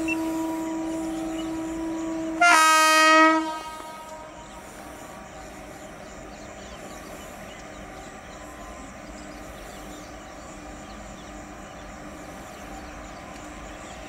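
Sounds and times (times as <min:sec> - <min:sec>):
passenger train rumbling: 0:00.0 - 0:14.0.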